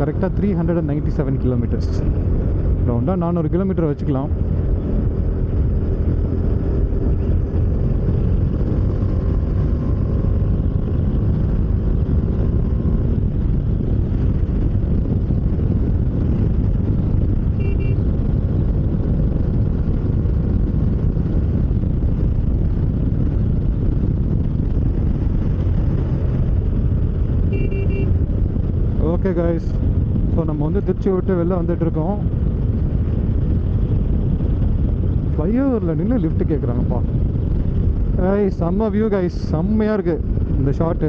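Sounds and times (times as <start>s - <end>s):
motorcycle engine hum: 0.0s - 41.0s
wind rush on microphone: 0.0s - 41.0s
vehicle horn beep: 17.5s - 18.1s, 27.5s - 28.2s.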